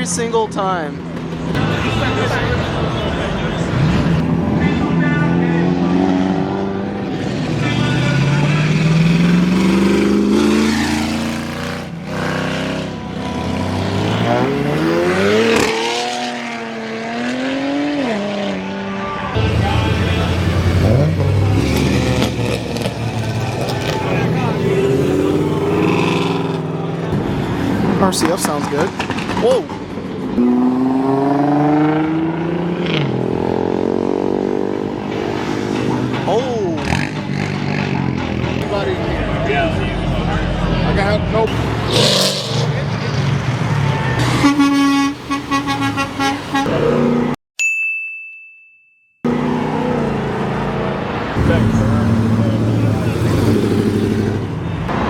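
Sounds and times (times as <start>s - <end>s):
cars accelerating hard past: 3.6s - 29.4s, 30.0s - 38.6s
car engine accelerating: 30.2s - 36.2s, 49.3s - 55.0s.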